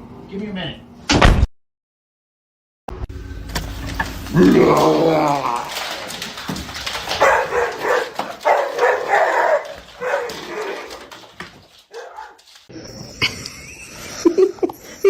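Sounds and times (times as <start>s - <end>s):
dog barking and whining: 7.1s - 11.1s, 11.9s - 12.4s.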